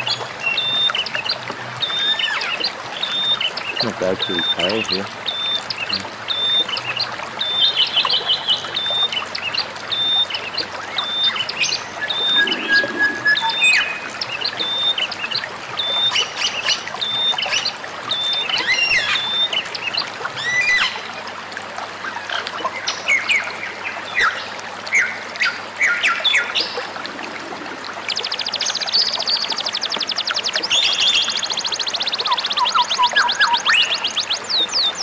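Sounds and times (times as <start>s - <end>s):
songbirds whistling and chirping: 0.0s - 21.1s, 28.1s - 35.0s
running water hiss: 0.0s - 21.5s.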